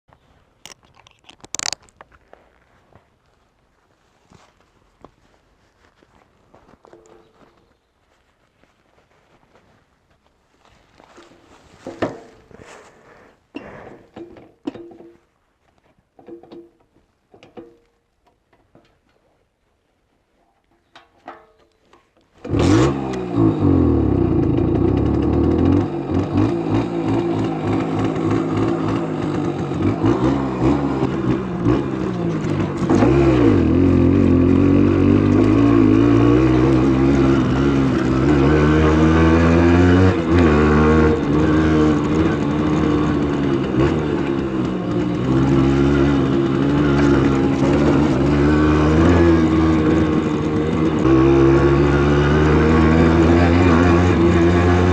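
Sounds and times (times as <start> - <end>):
two-stroke engine revving: 22.4 - 54.9.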